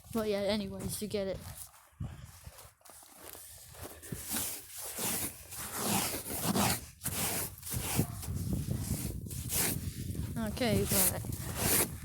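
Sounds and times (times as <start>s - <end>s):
footsteps crunching through snow: 0.0s - 12.0s.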